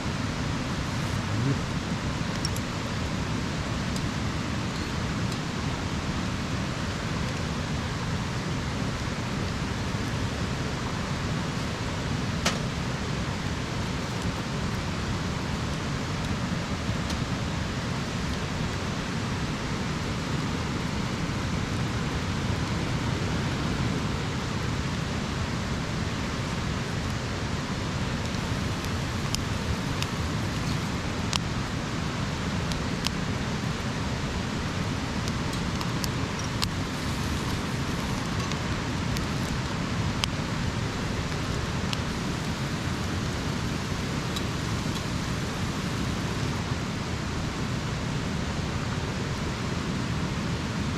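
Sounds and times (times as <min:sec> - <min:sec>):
campfire hissing: 0:00.0 - 0:50.9
fire crackling pops: 0:28.1 - 0:31.5, 0:34.6 - 0:40.4.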